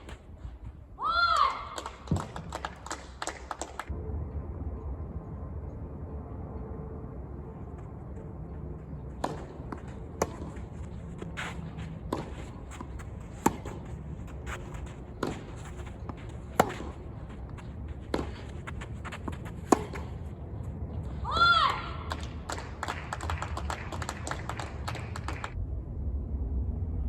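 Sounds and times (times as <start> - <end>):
tennis ball bouncing on court: 9.1 - 11.4, 12.0 - 20.2
tennis ball struck by racket: 12.0 - 17.0, 19.2 - 20.2.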